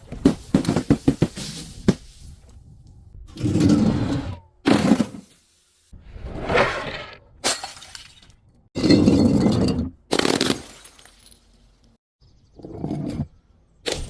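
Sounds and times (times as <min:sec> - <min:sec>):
glass bottles shattering: 0:07.4 - 0:11.6.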